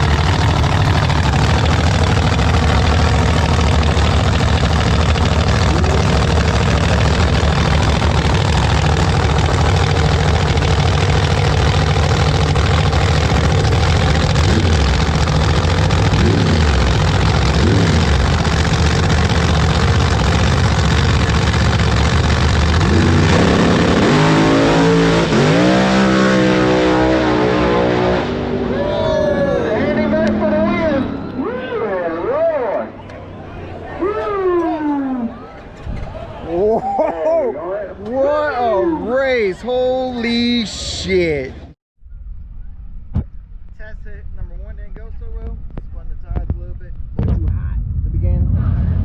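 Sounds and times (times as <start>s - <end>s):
truck engines revving: 0.0s - 41.8s, 47.0s - 49.0s.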